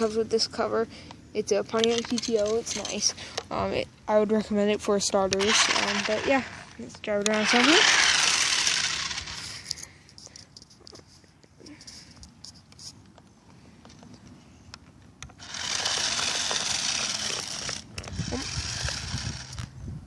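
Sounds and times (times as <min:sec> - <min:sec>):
toy car motor whirring: 0:00.0 - 0:00.8, 0:01.4 - 0:03.6, 0:05.3 - 0:11.0, 0:15.3 - 0:19.8.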